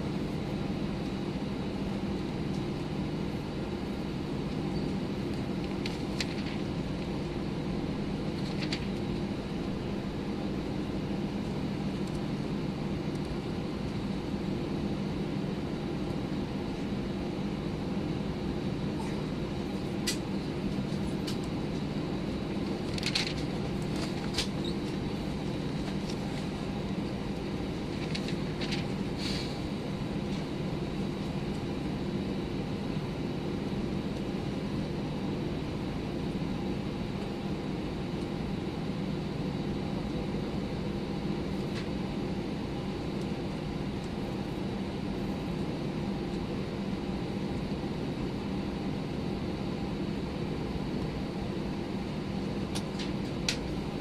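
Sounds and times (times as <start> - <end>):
airplane engines: 0.0 - 54.0
faint clicks and rattles: 22.8 - 24.5.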